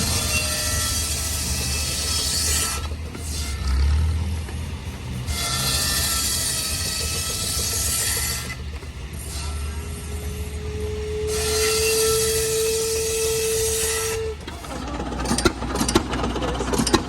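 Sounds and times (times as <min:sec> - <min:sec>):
machinery low rumble: 0:00.0 - 0:13.6.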